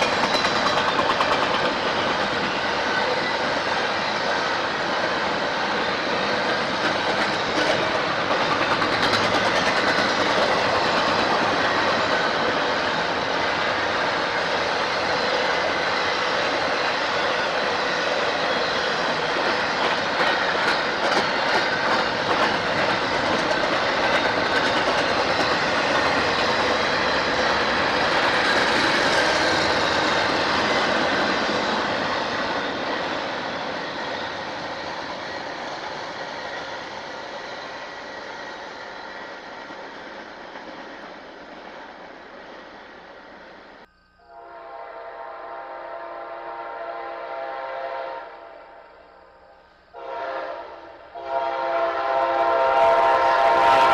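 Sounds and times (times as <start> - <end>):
train wheels clicking on rails: 0.0 - 43.9
locomotive horn chord: 44.3 - 48.8, 50.0 - 53.9.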